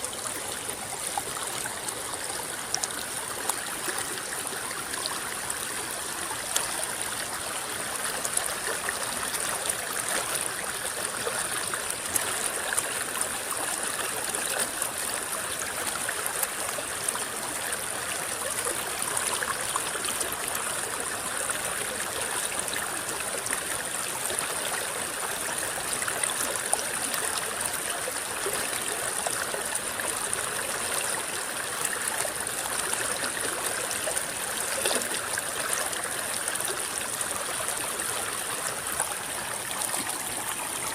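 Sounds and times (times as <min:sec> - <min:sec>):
river water babbling: 0:00.0 - 0:40.9
small water splashes: 0:28.4 - 0:40.9.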